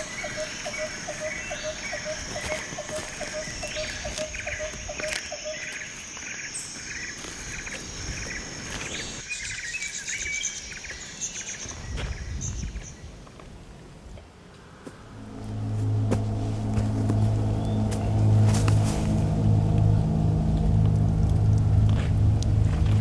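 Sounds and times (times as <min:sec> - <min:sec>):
high insect drone: 0:00.0 - 0:09.2, 0:14.7 - 0:23.0
bird chirping trills: 0:00.0 - 0:13.0, 0:15.0 - 0:23.0
low rumble: 0:14.8 - 0:23.0.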